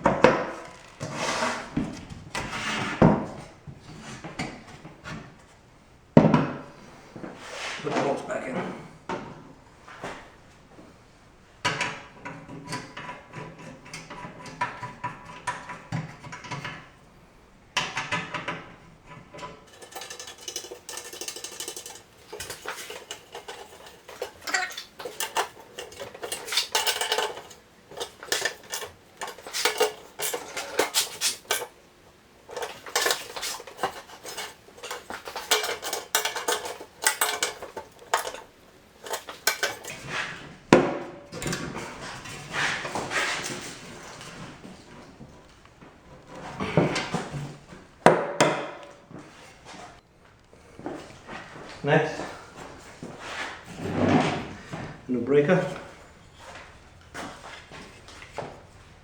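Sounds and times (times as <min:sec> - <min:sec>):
metal bolts and tools clinking: 0:17.8 - 0:40.4, 0:41.3 - 0:44.3.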